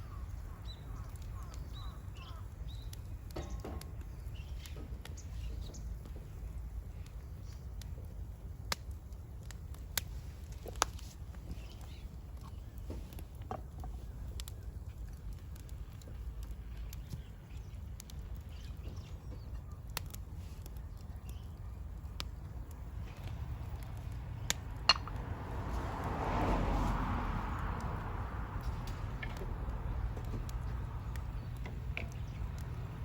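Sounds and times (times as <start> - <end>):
faint bird chirps: 0.0 - 6.0.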